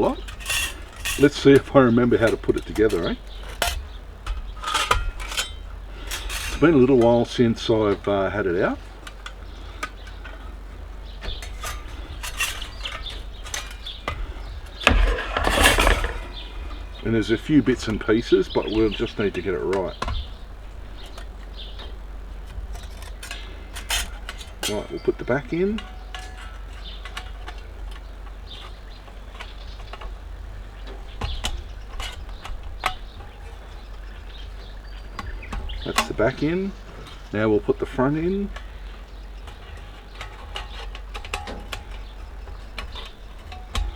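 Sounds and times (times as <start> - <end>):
metal parts clinking and knocking: 0.0 - 10.5, 11.1 - 17.1, 22.4 - 30.1, 39.4 - 43.9
metal rattling and scraping: 0.0 - 43.9
steady low hum: 0.0 - 43.9.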